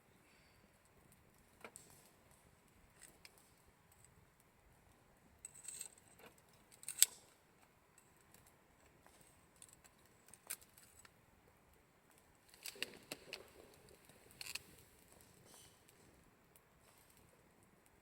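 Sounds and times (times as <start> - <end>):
campfire crackling: 6.4 - 18.0.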